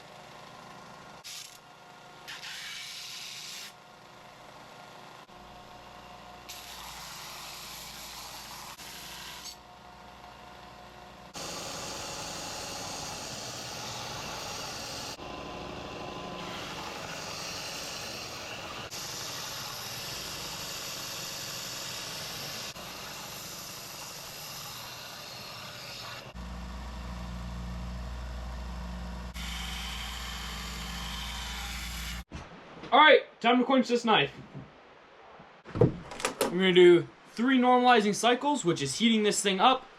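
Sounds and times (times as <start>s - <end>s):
power sander on steel: 11.3s - 32.3s
low machine hum: 26.3s - 32.2s.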